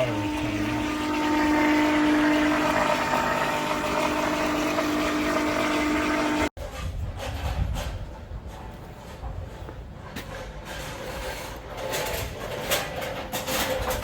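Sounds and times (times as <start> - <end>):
mechanical hum with held tones: 0.0 - 6.5.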